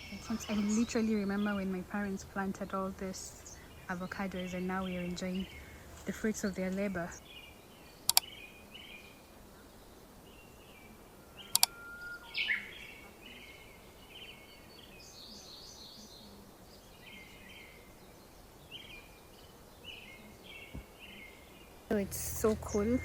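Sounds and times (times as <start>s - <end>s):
small birds chirping: 0.0s - 23.0s
sharp clicks: 8.0s - 8.3s, 11.5s - 11.7s.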